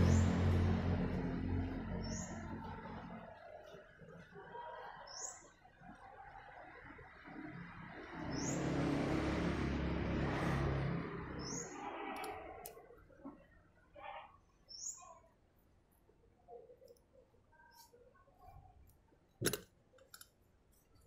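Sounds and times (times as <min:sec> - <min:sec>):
birds chirping: 0:00.0 - 0:08.8, 0:11.2 - 0:12.4.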